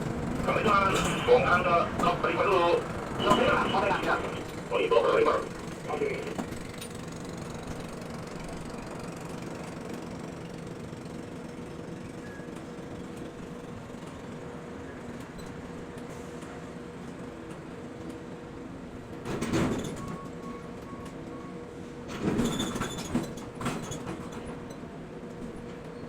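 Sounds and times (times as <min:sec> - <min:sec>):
crane machinery hum: 0:00.0 - 0:15.2.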